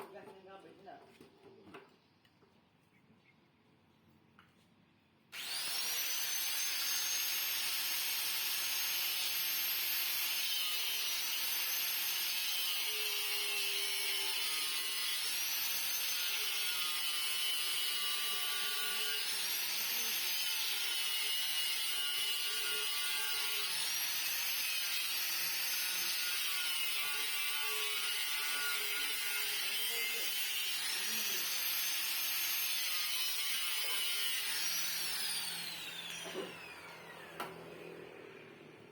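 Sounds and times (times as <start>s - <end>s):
electric power tool motor whine: 5.4s - 38.9s.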